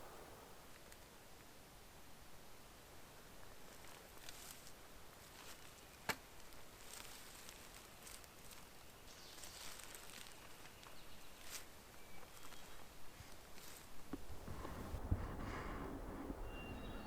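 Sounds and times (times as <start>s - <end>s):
light rustling: 0.0s - 0.6s, 13.6s - 17.0s
faint high chirps: 14.5s - 17.0s.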